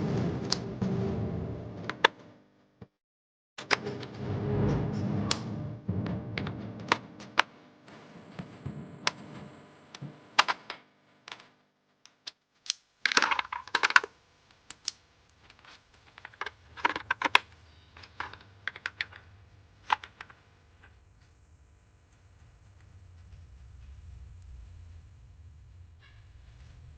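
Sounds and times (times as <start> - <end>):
small objects clicking and clattering: 12.1 - 20.4.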